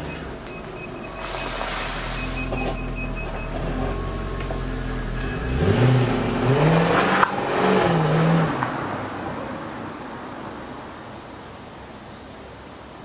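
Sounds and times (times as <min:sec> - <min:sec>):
quick high beeping: 0:00.0 - 0:06.9
car engine idling and revving: 0:00.0 - 0:09.9.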